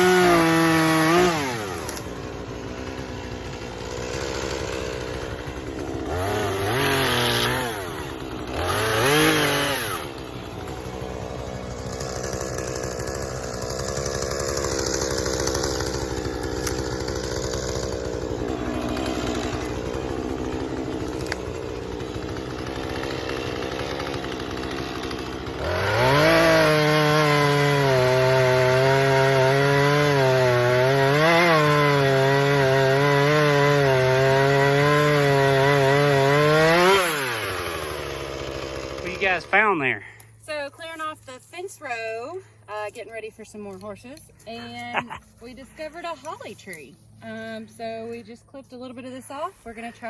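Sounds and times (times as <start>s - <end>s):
chainsaw revving: 0.0s - 41.1s, 41.8s - 46.4s, 47.2s - 48.2s.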